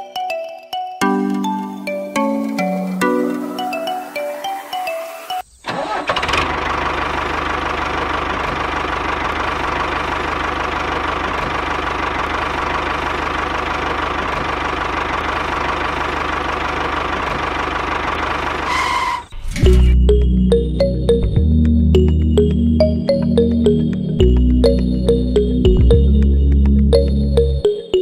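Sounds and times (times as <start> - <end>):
mallet music: 0.0 - 5.4, 19.7 - 28.0
tractor engine running: 5.7 - 27.7.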